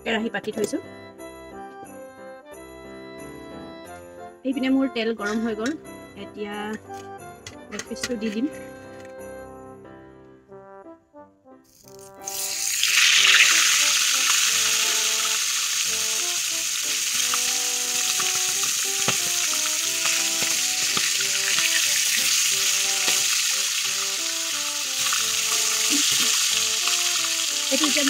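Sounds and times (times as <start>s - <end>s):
chicken sizzling in hot oil: 11.7s - 28.0s.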